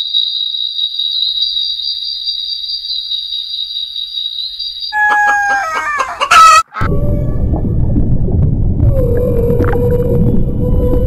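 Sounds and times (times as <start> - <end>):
rooster crowing: 5.0 - 7.0
low rumbling noise: 6.8 - 11.0.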